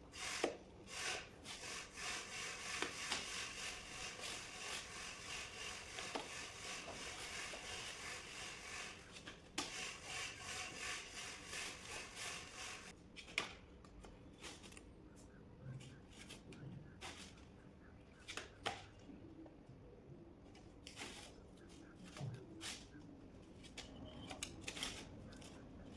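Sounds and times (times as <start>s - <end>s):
scraping on hard surface: 0.2s - 13.0s.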